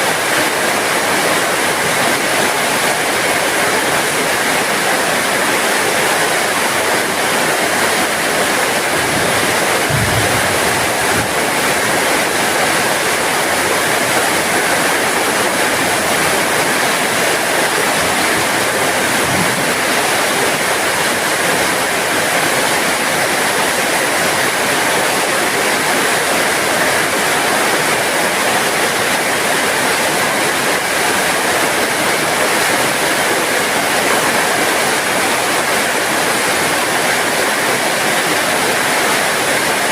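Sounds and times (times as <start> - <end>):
heavy rain falling: 0.0 - 39.9
faint low thumps: 9.0 - 11.6.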